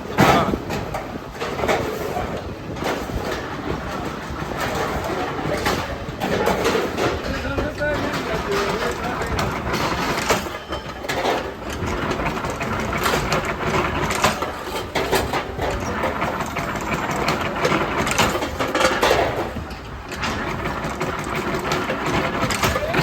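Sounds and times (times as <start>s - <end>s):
metalworking machinery running: 2.8s - 23.0s
metallic knocks and clanks: 4.6s - 23.0s.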